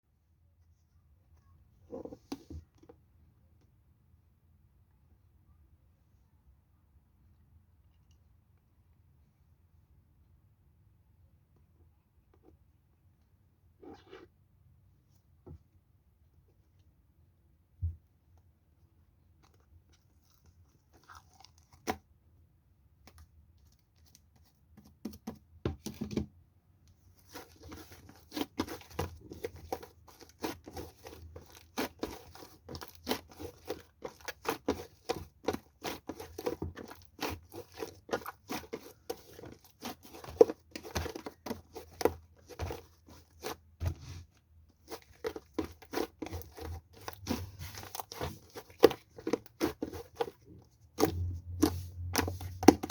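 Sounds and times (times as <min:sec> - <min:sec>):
close crackling and crunching: 0:27.2 - 0:43.7, 0:44.8 - 0:52.9.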